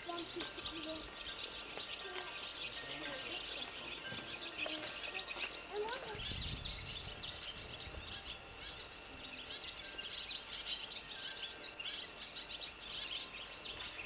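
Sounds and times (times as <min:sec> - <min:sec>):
songbirds chirping and trilling: 0:00.0 - 0:14.0.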